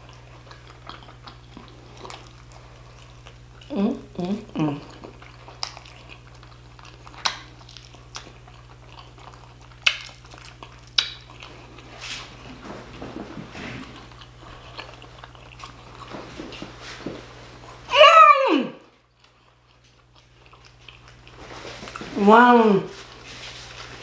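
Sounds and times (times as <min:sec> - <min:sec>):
chewing meat: 0:00.0 - 0:17.9, 0:18.8 - 0:22.2
low steady hum: 0:00.0 - 0:24.0
lip smacks: 0:04.8 - 0:12.4.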